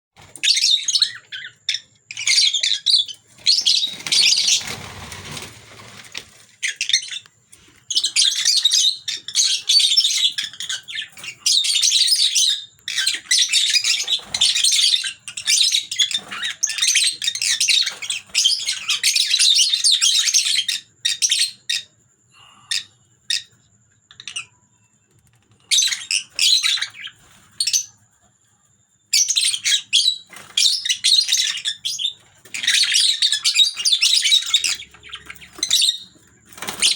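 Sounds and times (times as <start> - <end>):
lovebirds chirping: 0.2 - 36.9
rustling: 3.9 - 6.7.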